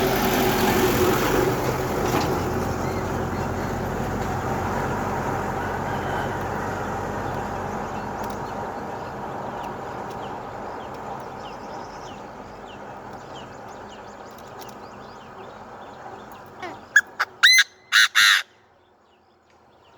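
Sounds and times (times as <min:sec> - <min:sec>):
bird calling sharp notes: 0:16.6 - 0:18.6.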